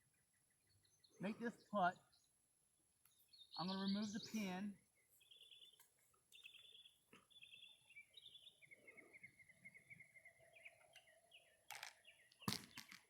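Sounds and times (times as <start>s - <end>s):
birdsong chirping and trilling: 0.0s - 13.0s
open-air ambience: 0.0s - 13.0s.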